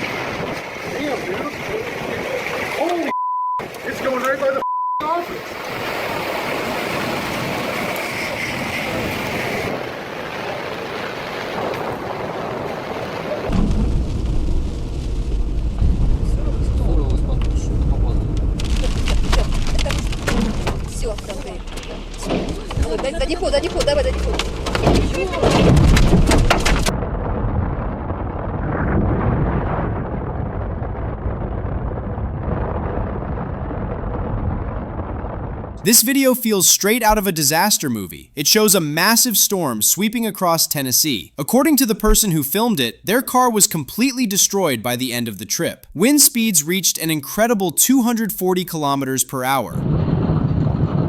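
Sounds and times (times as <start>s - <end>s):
rain: 0.0s - 35.8s
wind: 0.0s - 51.0s
loud low rumble: 13.5s - 25.0s, 25.6s - 35.9s
wind buffeting the microphone: 49.7s - 51.0s.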